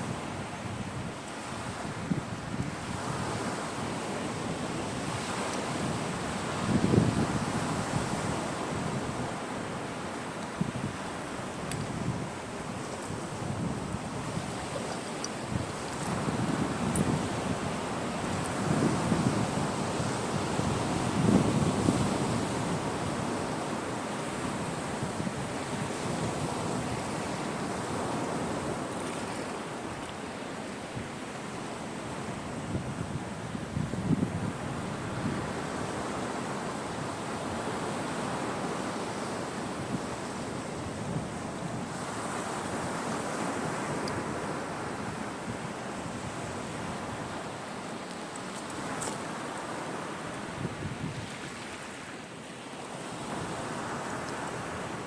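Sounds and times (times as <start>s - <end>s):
wind buffeting microphone: 0.0s - 9.5s, 10.6s - 29.3s, 32.1s - 36.1s, 50.5s - 51.6s
sea waves washing onto shore: 0.0s - 55.0s.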